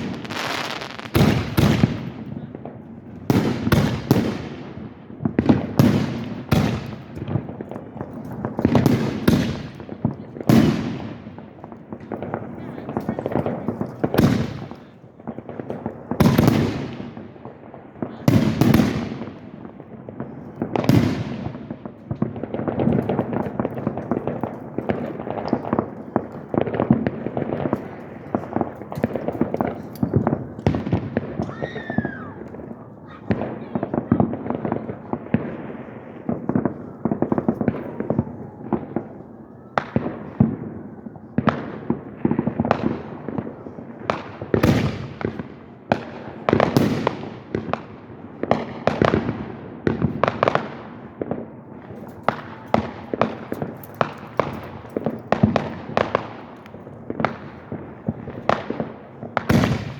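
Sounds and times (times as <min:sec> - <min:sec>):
firework crackling: 0:00.0 - 0:59.9
firework whistle: 0:31.4 - 0:32.5.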